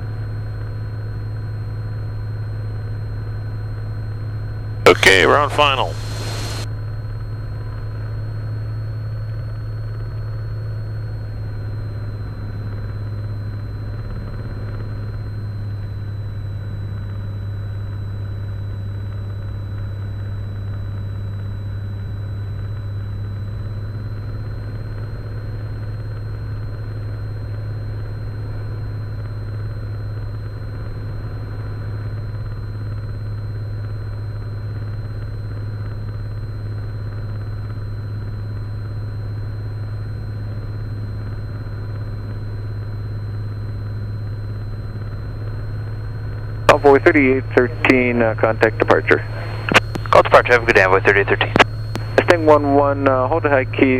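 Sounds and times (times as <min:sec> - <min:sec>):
propeller plane engine droning: 0:00.0 - 0:53.9
thin high whine: 0:04.9 - 0:06.7, 0:37.2 - 0:53.9.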